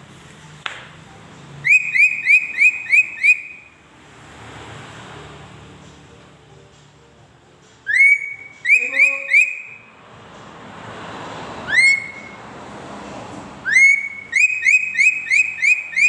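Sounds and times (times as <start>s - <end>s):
bird whistling: 1.6s - 3.8s, 7.8s - 9.9s, 11.6s - 12.4s, 13.6s - 16.0s.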